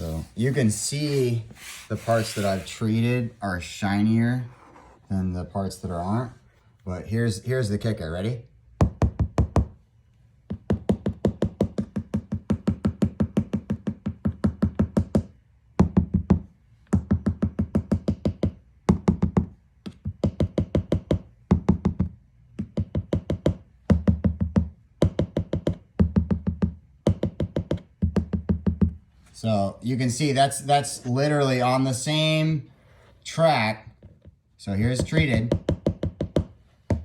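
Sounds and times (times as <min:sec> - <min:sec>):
rapid knocking on plastic shield: 0:08.8 - 0:09.8, 0:10.5 - 0:29.0, 0:34.8 - 0:37.0.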